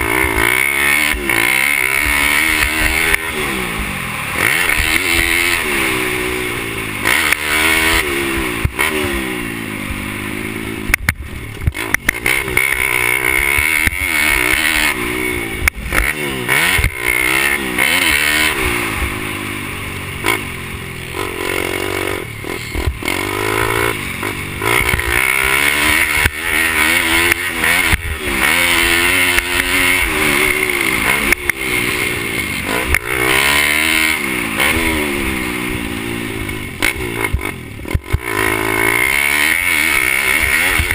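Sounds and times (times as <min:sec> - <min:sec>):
small motorbike engine revving: 0:00.0 - 0:40.9.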